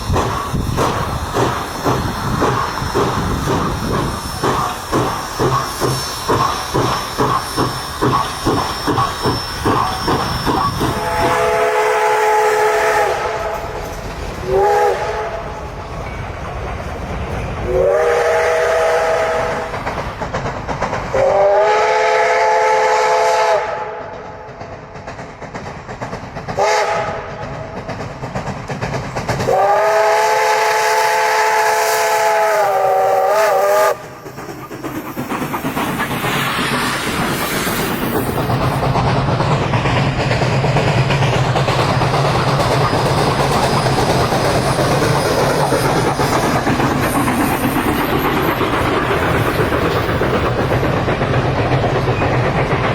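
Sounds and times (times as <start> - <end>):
rail noise: 0.0 - 52.9
steam hiss: 0.0 - 52.9
steam locomotive exhaust chuffing: 0.0 - 52.9
steam whistle blasts: 7.6 - 13.8, 14.4 - 15.5, 17.7 - 19.7, 21.2 - 24.1, 26.6 - 27.3, 29.5 - 34.0.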